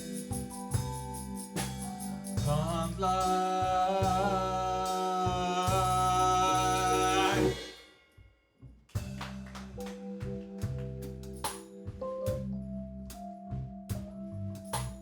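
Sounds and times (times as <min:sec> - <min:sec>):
drum hits: 0:00.0 - 0:04.5, 0:05.3 - 0:07.9
bass line: 0:00.0 - 0:07.7, 0:09.0 - 0:15.0.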